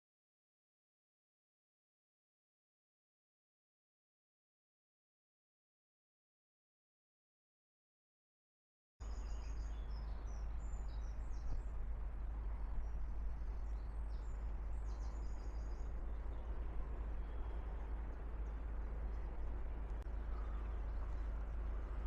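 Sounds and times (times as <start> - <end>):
small birds chirping: 9.0 - 11.8, 12.6 - 22.0
low outdoor rumble: 9.0 - 22.0.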